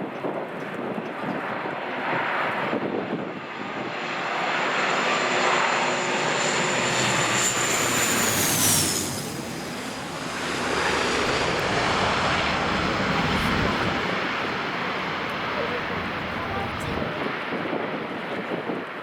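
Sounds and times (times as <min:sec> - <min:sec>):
jet airliner passing: 0:01.2 - 0:18.9
high turbine whine: 0:02.8 - 0:17.3.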